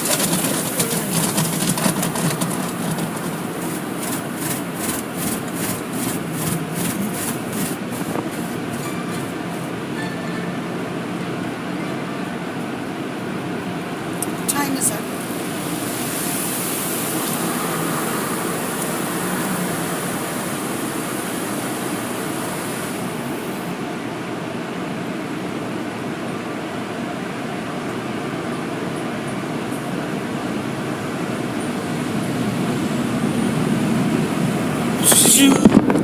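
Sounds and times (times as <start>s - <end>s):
rushing vehicle noise: 0.0s - 36.0s
high hiss: 14.8s - 23.7s.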